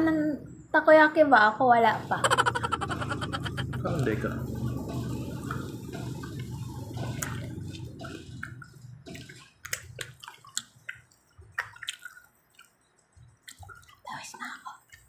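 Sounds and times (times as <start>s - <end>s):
low rumble: 2.0s - 9.2s
wet chewing mouth sounds: 2.7s - 14.1s.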